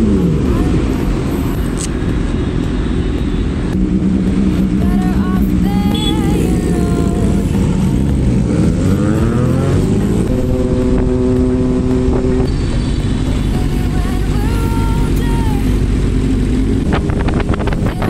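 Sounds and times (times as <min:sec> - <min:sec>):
motorcycle engine revving: 0:00.0 - 0:18.0
wind noise: 0:15.8 - 0:18.0.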